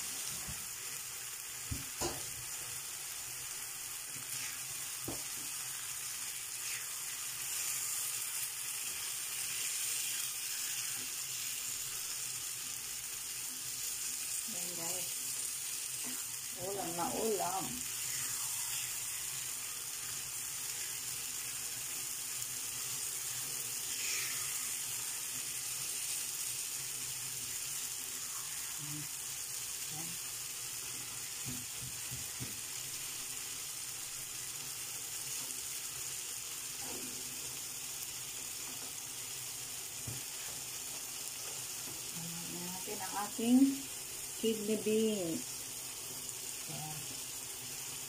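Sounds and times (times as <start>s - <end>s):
food sizzling in a frying pan: 0.0s - 48.0s.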